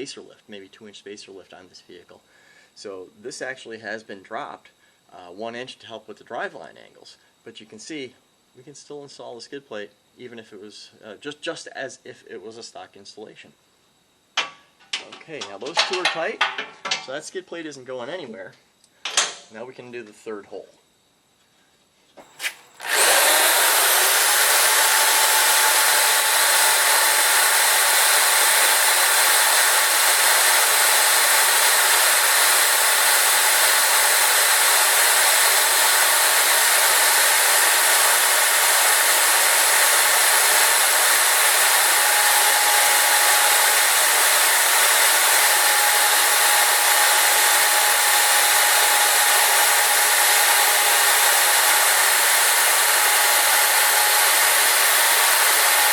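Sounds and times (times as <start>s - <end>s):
electric drill whining: 22.2s - 55.9s.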